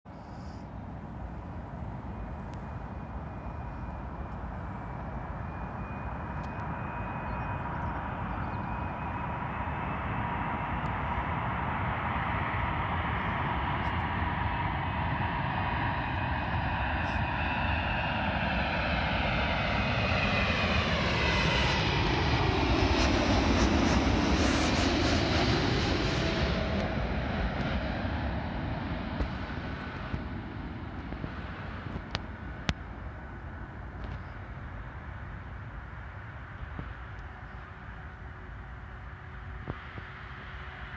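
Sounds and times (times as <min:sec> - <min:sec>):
jet airliner engines: 0:00.1 - 0:40.9
steady engine whine: 0:00.1 - 0:40.9.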